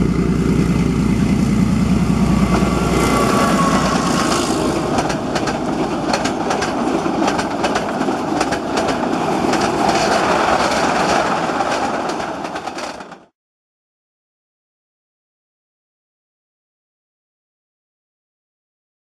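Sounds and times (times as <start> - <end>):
diesel locomotive engine rumble: 0.0 - 13.3
train wheels clicking over rail joints: 2.2 - 13.3.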